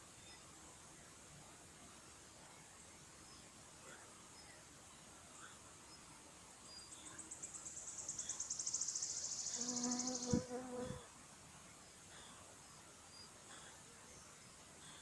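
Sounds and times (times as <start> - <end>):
insect buzzing: 7.9 - 11.1.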